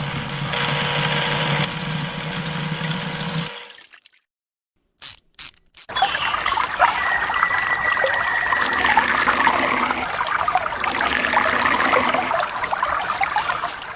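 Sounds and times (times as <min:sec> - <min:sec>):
water trickling and splashing: 0:01.7 - 0:04.3, 0:05.9 - 0:13.9
faint pump whine: 0:07.0 - 0:13.9.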